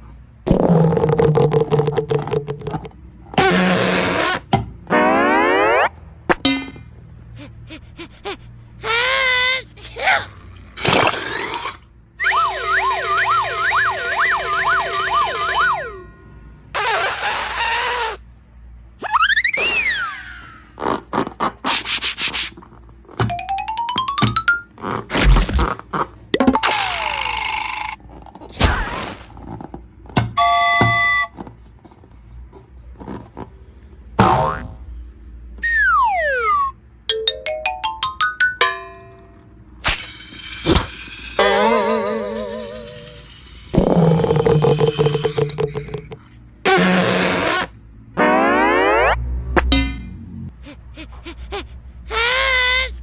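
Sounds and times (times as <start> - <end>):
wailing siren tones: 4.9 - 6.0, 12.2 - 16.2, 35.6 - 36.8, 48.2 - 49.6.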